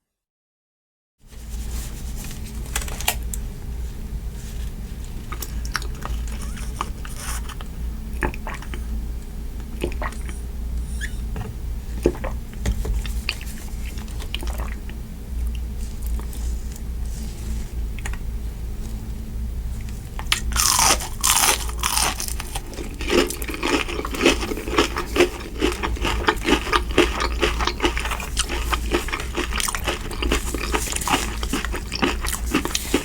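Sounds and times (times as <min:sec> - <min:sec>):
steady low hum: 0:01.3 - 0:33.0
person chewing: 0:05.2 - 0:08.8, 0:13.0 - 0:17.4, 0:20.2 - 0:33.0.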